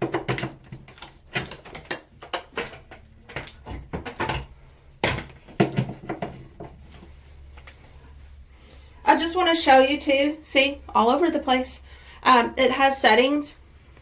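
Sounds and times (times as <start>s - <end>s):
objects clicking and knocking: 0.0s - 7.0s.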